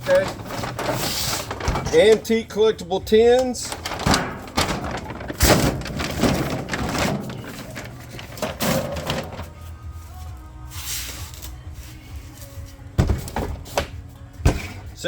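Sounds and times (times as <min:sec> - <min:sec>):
rustling: 0:00.0 - 0:02.3, 0:03.5 - 0:13.7
items knocking and clattering: 0:00.0 - 0:02.4, 0:03.3 - 0:09.6, 0:13.0 - 0:15.0.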